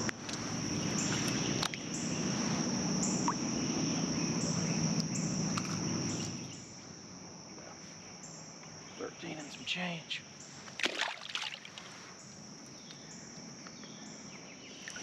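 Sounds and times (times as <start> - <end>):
insects trilling: 0.0 - 15.0
low steady hum: 0.0 - 15.0.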